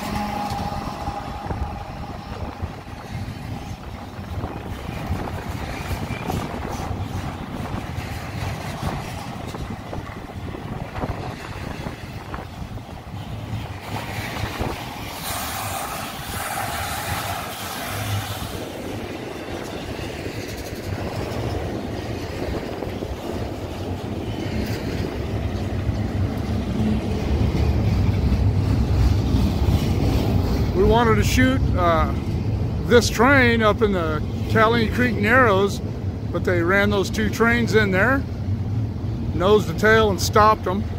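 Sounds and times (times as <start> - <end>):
freight train passing: 0.0 - 40.9.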